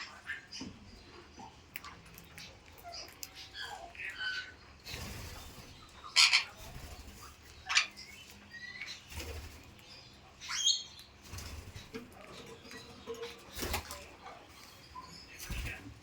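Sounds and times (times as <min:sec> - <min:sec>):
parrot chirping: 0:05.8 - 0:09.1, 0:10.0 - 0:11.2
parrot squawking: 0:06.0 - 0:06.6.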